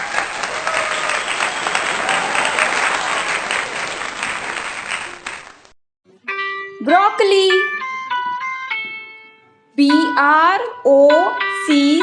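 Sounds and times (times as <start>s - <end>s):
crowd applauding: 0.0s - 5.8s.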